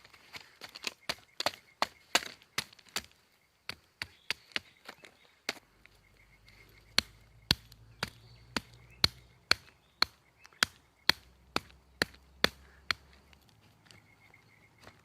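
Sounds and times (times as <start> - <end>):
blade chopping wood: 0.8 - 3.1, 6.9 - 13.2.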